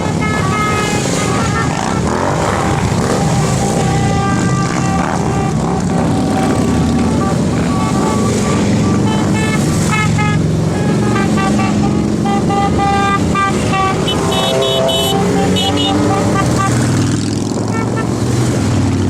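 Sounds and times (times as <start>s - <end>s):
motorcycle engines rumbling: 0.0s - 19.0s
short horn toots: 6.5s - 17.0s.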